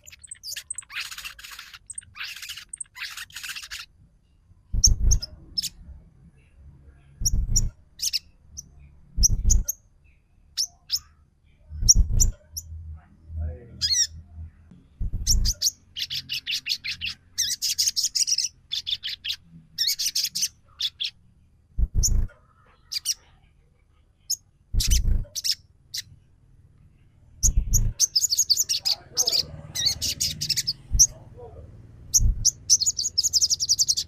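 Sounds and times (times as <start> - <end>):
bird chattering trills: 0.0 - 3.9, 4.8 - 5.8, 15.2 - 21.1, 24.8 - 26.1, 27.4 - 31.2, 32.1 - 34.0
low thumps: 4.7 - 5.3, 7.2 - 7.7, 9.2 - 9.7, 14.8 - 15.6, 21.8 - 22.3, 27.4 - 28.0, 32.1 - 32.6.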